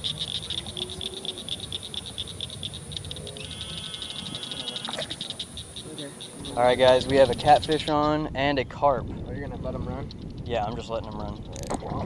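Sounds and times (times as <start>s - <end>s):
second pulsing insect call: 0.0s - 8.2s
night insects chorus: 0.0s - 12.0s.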